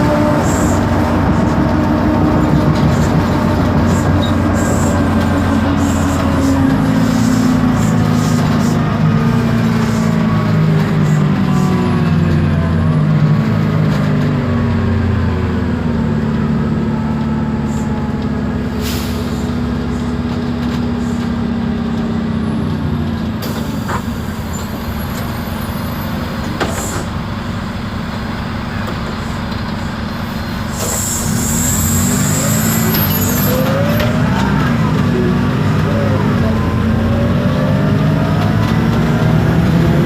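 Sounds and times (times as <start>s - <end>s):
bus diesel engine running: 0.0s - 40.0s
air brake hisses: 18.7s - 19.7s, 30.2s - 33.4s.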